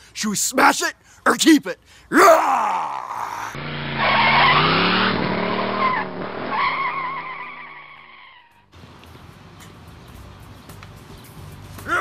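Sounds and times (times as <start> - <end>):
race car engine revving: 3.6 - 8.1
tyres squealing: 3.7 - 8.6.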